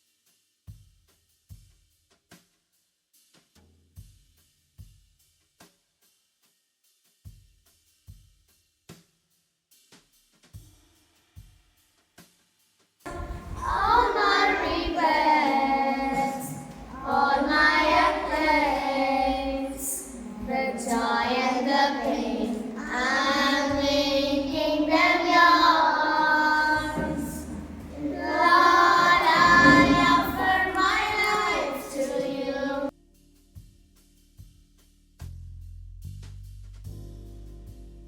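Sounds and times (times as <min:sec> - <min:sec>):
child singing: 0:13.1 - 0:32.9.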